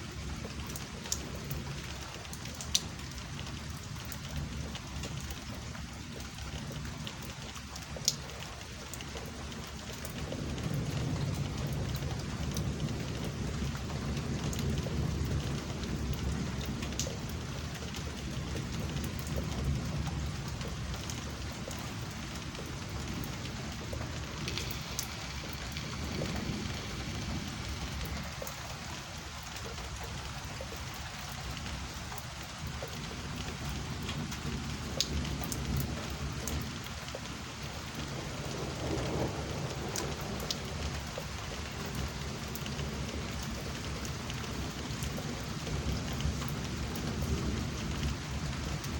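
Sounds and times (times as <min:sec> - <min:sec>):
raindrops ticking close by: 0:00.0 - 0:48.9
steady rain falling: 0:00.0 - 0:48.9
thunder rumbling: 0:10.0 - 0:41.2.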